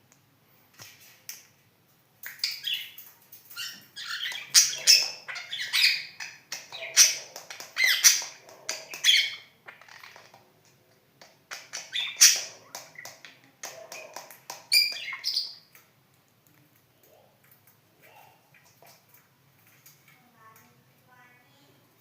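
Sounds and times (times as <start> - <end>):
budgerigar chattering and squawking: 3.6 - 10.0.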